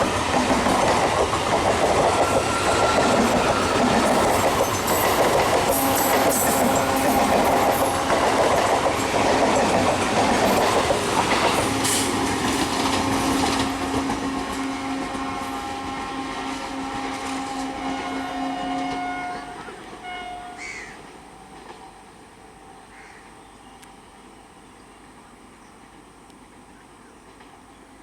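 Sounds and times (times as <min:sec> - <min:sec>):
train wheels rattling over rails: 0:00.0 - 0:17.8
train hum: 0:00.0 - 0:28.0.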